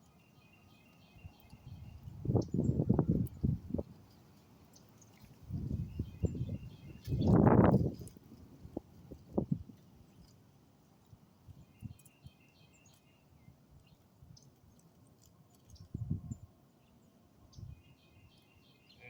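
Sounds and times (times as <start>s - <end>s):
faint bird chirps: 11.5s - 14.5s, 15.5s - 19.0s.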